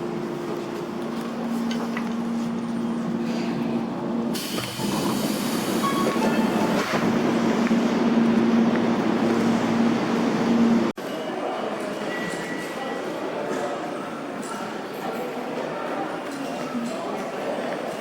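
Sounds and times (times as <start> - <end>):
electric train humming: 0.0 - 10.9
rushing rail noise: 0.0 - 16.0.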